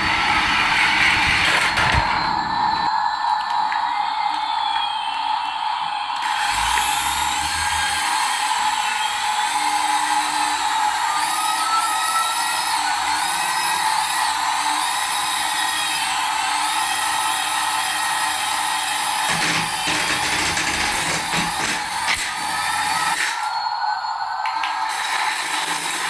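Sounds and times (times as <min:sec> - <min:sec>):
small motor whining: 0:06.2 - 0:16.9, 0:19.2 - 0:23.5.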